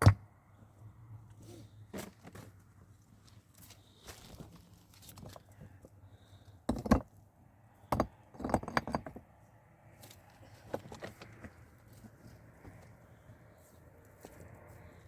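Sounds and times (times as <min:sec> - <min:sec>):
hard objects knocking and clattering: 0:06.7 - 0:07.1, 0:07.8 - 0:09.3.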